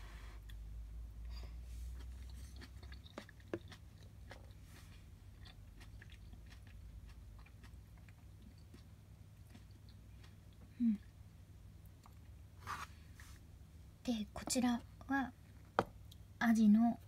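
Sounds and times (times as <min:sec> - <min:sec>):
person chewing: 0:01.3 - 0:12.4.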